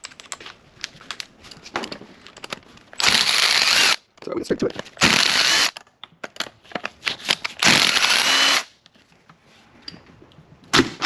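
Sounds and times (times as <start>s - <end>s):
cordless power tool whirring: 3.0s - 4.0s, 5.0s - 5.7s, 7.6s - 8.7s.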